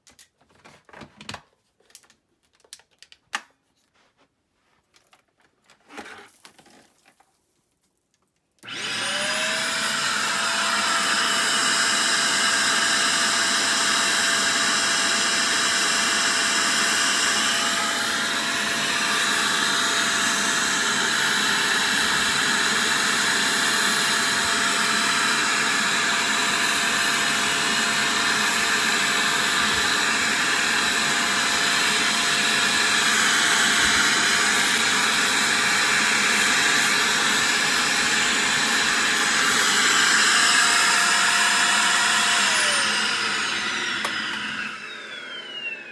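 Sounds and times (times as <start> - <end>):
faint handling sounds: 0.0 - 8.6
vacuum cleaner motor whine: 8.6 - 45.9.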